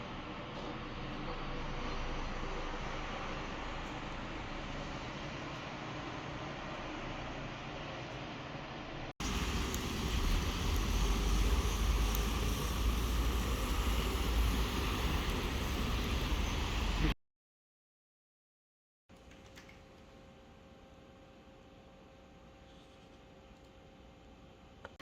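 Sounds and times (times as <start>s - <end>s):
steady rushing noise with rumble: 8.8s - 17.1s.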